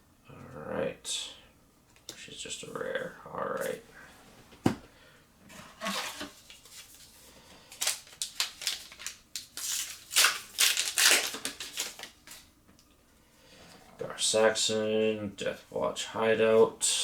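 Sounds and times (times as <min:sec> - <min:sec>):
foil pack crinkling: 0:06.0 - 0:12.5.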